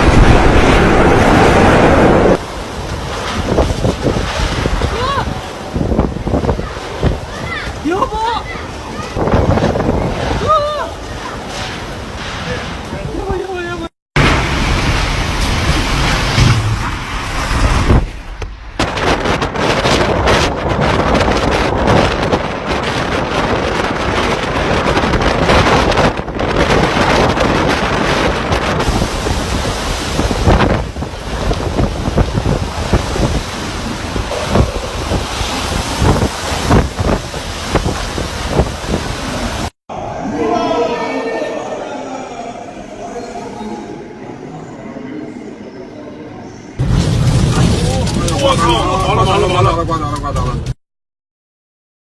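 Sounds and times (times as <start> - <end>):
wind buffeting the microphone: 0.0 - 39.7
strong gusting wind: 0.0 - 42.9.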